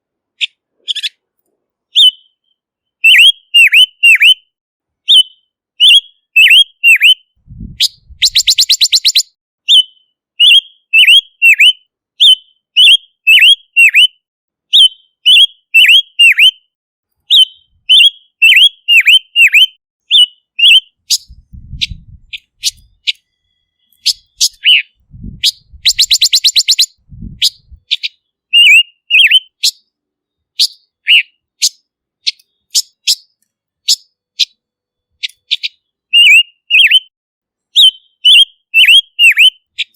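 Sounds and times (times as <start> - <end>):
faint low thumps: 7.4 - 8.3, 21.3 - 22.4, 25.0 - 25.9, 27.0 - 27.8
bird rattling trill: 8.0 - 9.2, 25.4 - 28.0.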